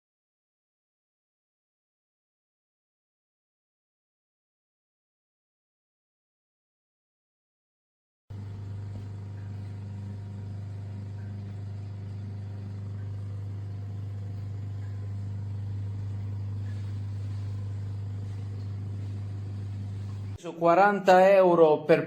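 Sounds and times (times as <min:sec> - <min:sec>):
electric motor humming: 0:08.3 - 0:20.4.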